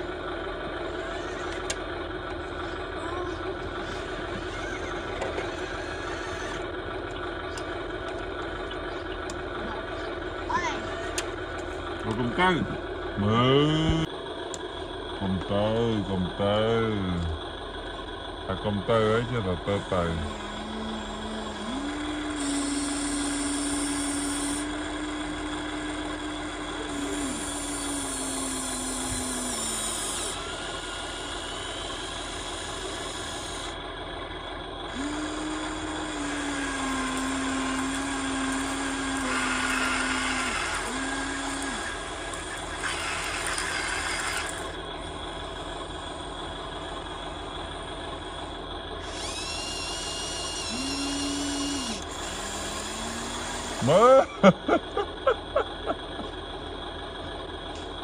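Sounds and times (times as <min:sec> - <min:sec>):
small electric motors whining: 0:00.0 - 0:54.8
hiss: 0:21.6 - 0:33.8.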